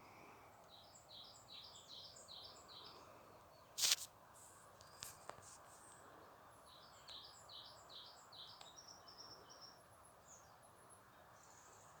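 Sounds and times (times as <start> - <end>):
songbird singing: 0.6 - 3.8, 6.6 - 11.9.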